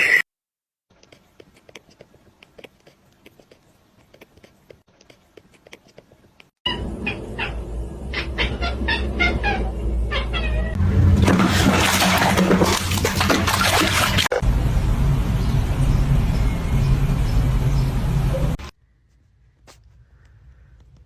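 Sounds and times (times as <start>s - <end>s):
cat meowing: 6.7s - 10.8s
low hum: 14.3s - 18.6s.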